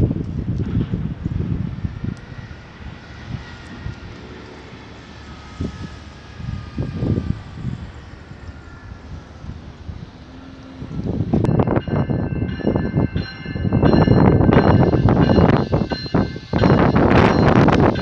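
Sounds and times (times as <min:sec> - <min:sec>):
distant engine drone: 0:00.0 - 0:18.0
wind buffeting microphone: 0:00.0 - 0:18.0
faint falling whine: 0:00.7 - 0:11.6.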